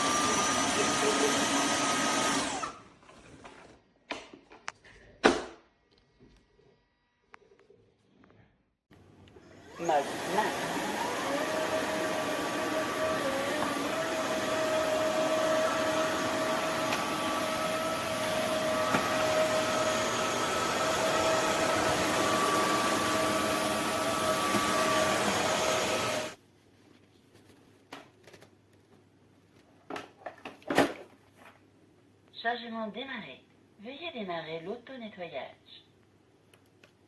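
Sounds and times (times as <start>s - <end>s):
floor vacuum motor whine: 0.0s - 2.8s, 9.2s - 26.4s.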